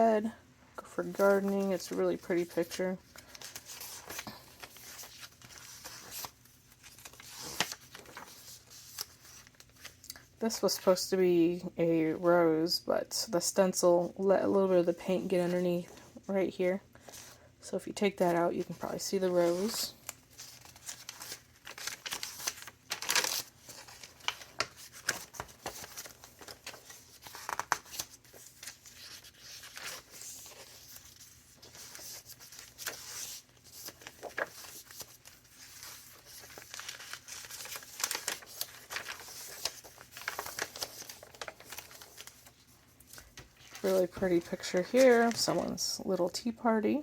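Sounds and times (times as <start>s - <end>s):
paper pages turning and rustling: 1.0s - 10.9s, 18.6s - 45.8s.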